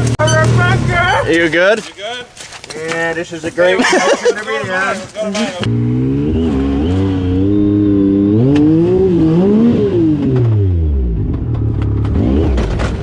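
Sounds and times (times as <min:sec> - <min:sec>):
utility vehicle engine revving: 0:05.6 - 0:13.0.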